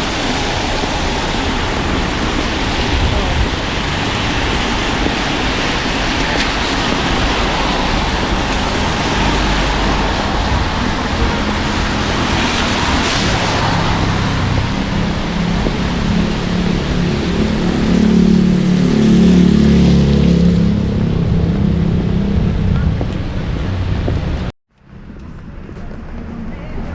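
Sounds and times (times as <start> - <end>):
car tyres hissing on wet road: 0.0 - 17.8
heavy vehicle engine hum: 0.0 - 26.9.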